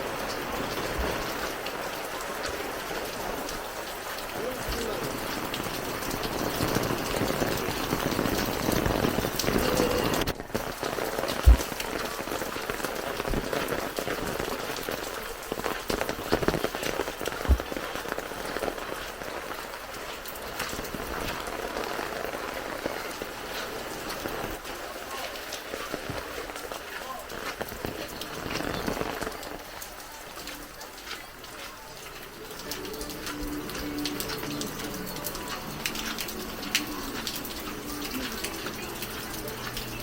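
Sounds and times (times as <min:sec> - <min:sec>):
heavy rain pattering: 0:00.0 - 0:40.0
dull thumps: 0:11.3 - 0:12.1, 0:17.3 - 0:17.8.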